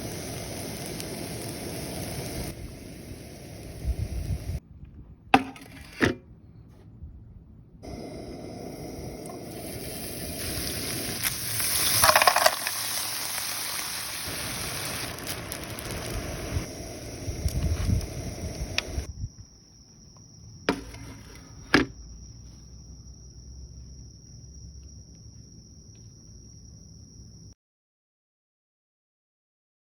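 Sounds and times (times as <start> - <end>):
food sizzling on griddle: 0.0 - 4.6, 7.8 - 19.1
faint high whine: 7.8 - 19.5.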